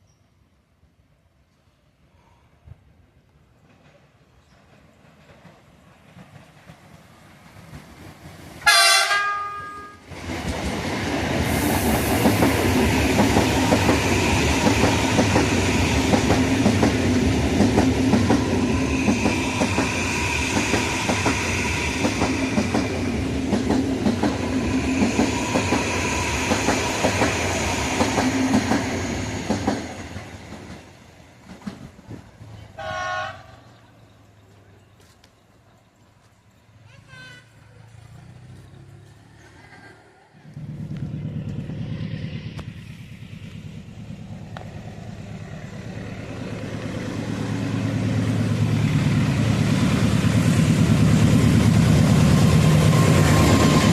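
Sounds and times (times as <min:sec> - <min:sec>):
train passing rumble: 0:00.8 - 0:53.9
train horn: 0:08.6 - 0:10.1, 0:32.8 - 0:33.6
wheels clacking over rails: 0:10.0 - 0:32.6.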